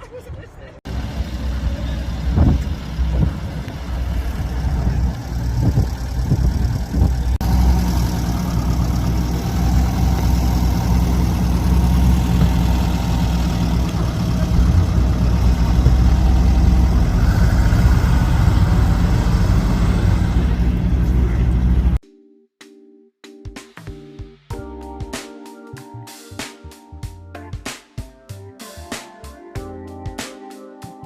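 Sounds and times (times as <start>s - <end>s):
car engine idling: 0.9s - 22.0s.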